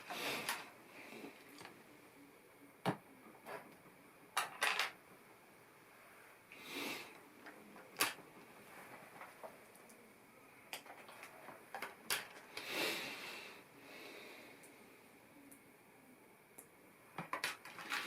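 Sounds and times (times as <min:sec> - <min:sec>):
plastic pieces rustling: 0:17.2 - 0:18.0.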